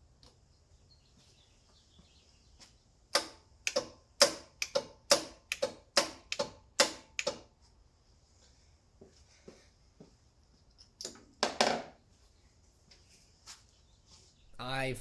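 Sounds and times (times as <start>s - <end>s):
sharp clicks: 3.2s - 7.4s.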